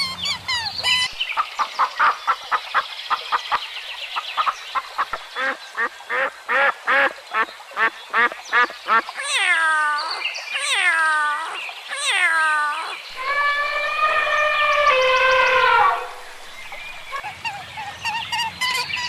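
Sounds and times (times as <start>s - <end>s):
farm animal long call: 9.1s - 17.2s.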